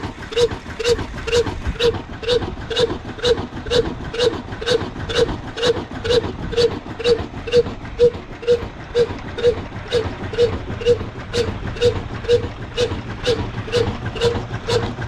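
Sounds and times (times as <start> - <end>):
diesel engine exhaust beat: 0.0 - 15.0.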